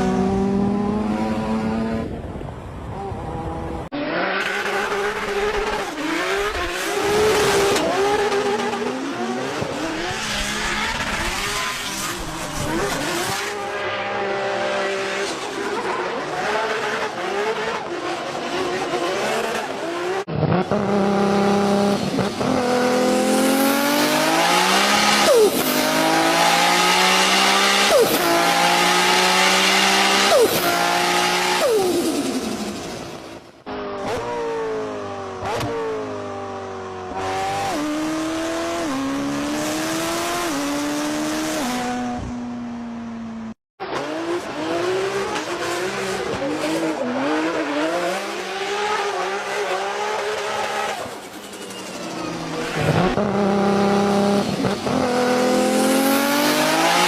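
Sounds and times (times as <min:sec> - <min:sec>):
race car engine revving: 0:03.0 - 0:33.2, 0:43.9 - 0:57.0
tyre squeal: 0:50.6 - 0:53.3.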